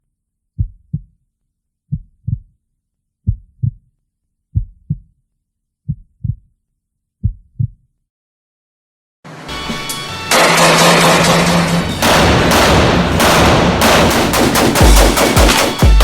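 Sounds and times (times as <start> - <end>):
heartbeat thumps: 0.6 - 1.2, 1.9 - 2.6, 3.2 - 3.9, 4.5 - 5.1, 5.9 - 6.5, 7.2 - 7.8, 14.6 - 16.0.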